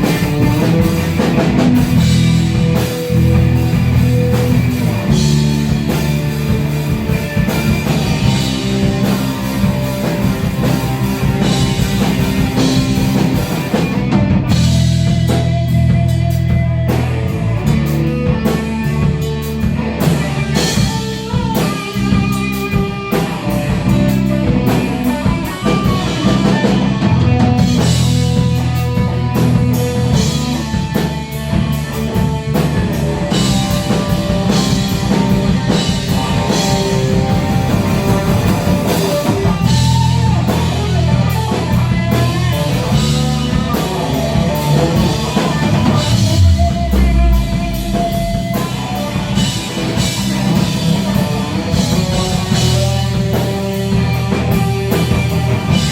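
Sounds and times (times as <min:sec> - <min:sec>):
rock band playing: 0:00.0 - 0:55.9
bass note sliding down: 0:45.3 - 0:50.2.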